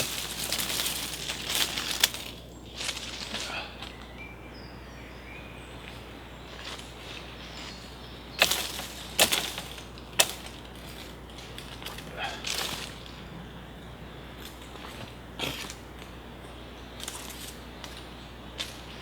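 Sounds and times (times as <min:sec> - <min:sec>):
branches cracking: 0:00.0 - 0:04.2, 0:06.5 - 0:13.3.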